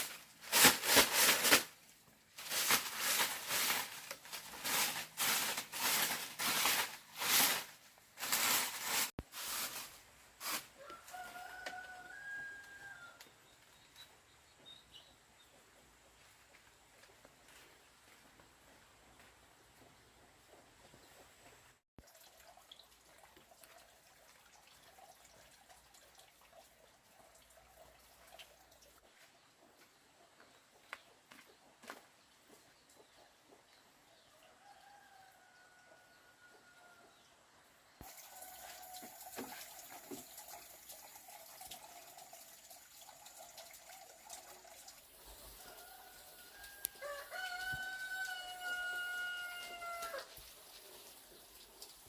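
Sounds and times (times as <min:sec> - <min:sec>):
rooster crowing: 0:10.8 - 0:13.2, 0:45.6 - 0:50.3.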